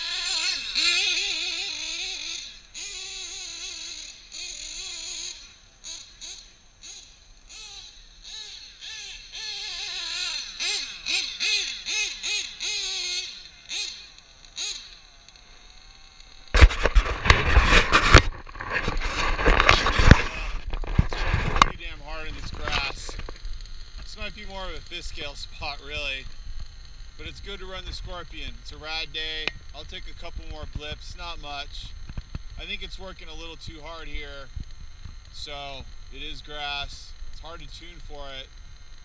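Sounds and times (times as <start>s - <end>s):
loud rough noise: 0.0s - 39.0s
model engine buzzing and revving: 0.0s - 39.0s.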